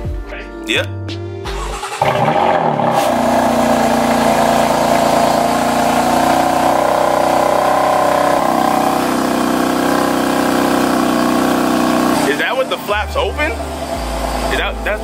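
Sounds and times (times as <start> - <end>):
car engine cold start idle: 1.6 - 12.8.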